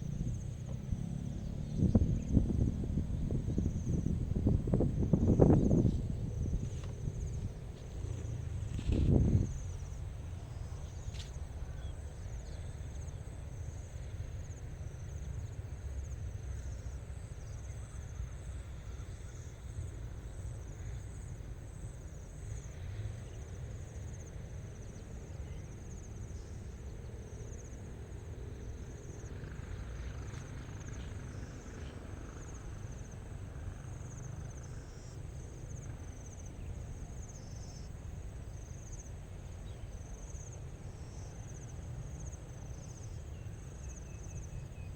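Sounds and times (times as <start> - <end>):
low rumble: 0.0 - 11.0
insects chirping: 0.0 - 44.9.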